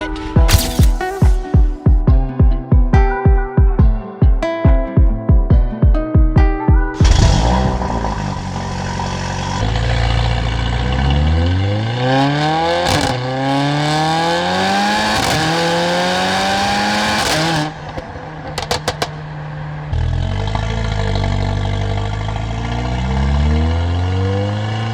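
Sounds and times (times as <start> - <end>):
exhaust crackles and pops: 7.0 - 23.3
car engine accelerating: 7.0 - 24.9.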